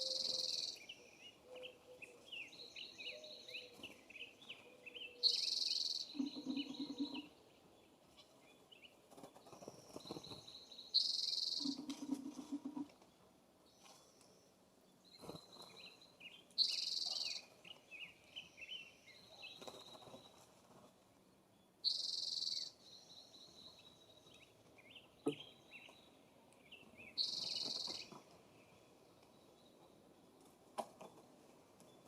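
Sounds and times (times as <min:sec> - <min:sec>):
small birds chirping: 0:00.0 - 0:32.0
harsh bird calls: 0:05.1 - 0:07.4.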